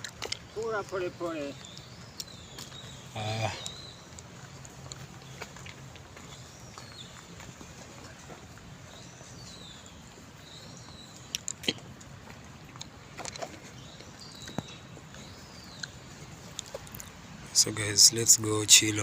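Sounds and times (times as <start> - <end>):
bird calls: 0.0 - 19.0.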